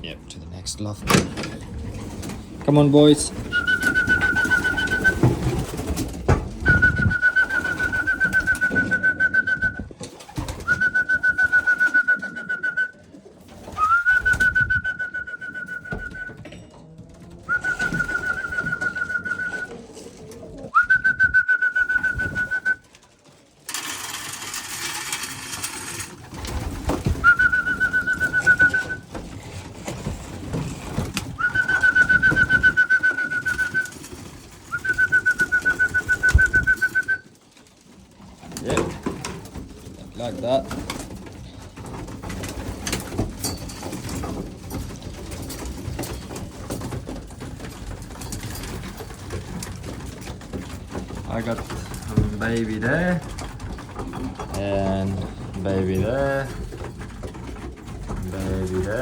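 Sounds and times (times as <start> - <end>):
pigeons cooing: 3.3 - 21.1, 26.5 - 37.4
trilling whistle calls: 3.4 - 5.4, 6.6 - 9.8, 10.6 - 12.9, 17.5 - 19.7, 20.8 - 22.8, 27.2 - 29.0, 31.4 - 34.0, 34.7 - 37.3.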